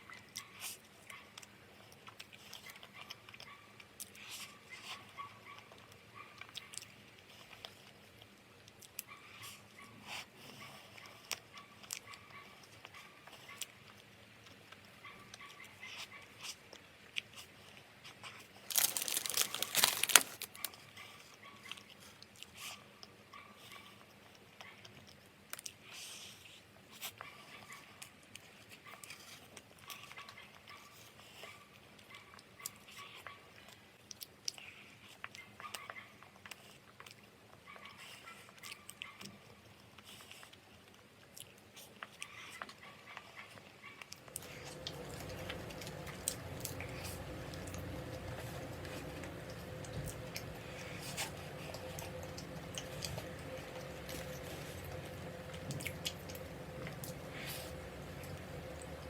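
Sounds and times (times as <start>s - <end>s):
chewing food: 0.0s - 59.0s
crumpling tearing rustle: 18.2s - 20.8s, 44.2s - 59.0s
faint crunches and clicks: 18.5s - 20.8s, 44.0s - 59.0s.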